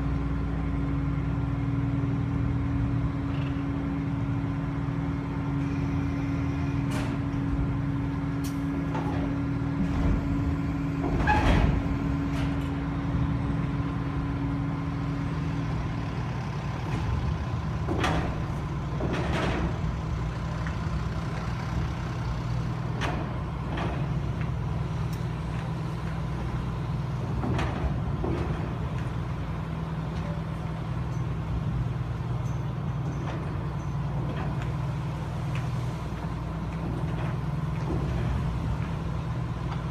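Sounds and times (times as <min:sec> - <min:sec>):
diesel engines droning: 0:00.0 - 0:39.9
metallic clanks and knocks: 0:17.8 - 0:19.9, 0:27.3 - 0:29.1.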